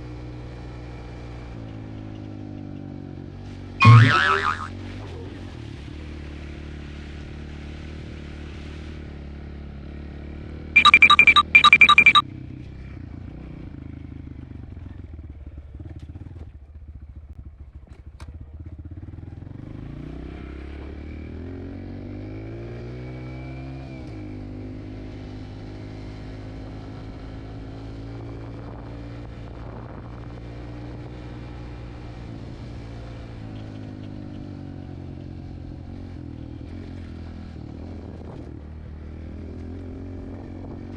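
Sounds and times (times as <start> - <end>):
loud short beeps: 3.8 - 4.7, 10.8 - 12.2.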